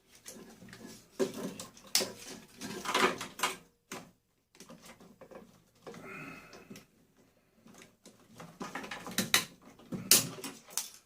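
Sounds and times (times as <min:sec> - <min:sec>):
plastic and metal parts clicking: 0:07.7 - 0:11.0.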